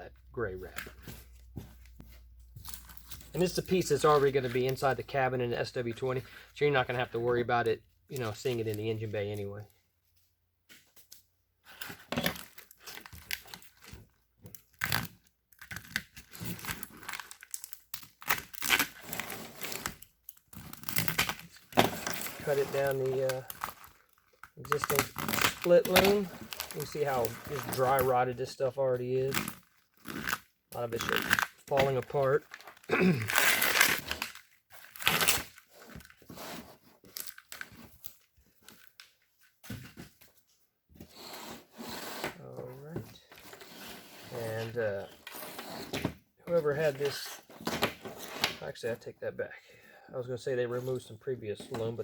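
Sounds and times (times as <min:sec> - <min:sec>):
plastic loom and tape tearing: 0:11.8 - 0:28.3, 0:29.2 - 0:36.6.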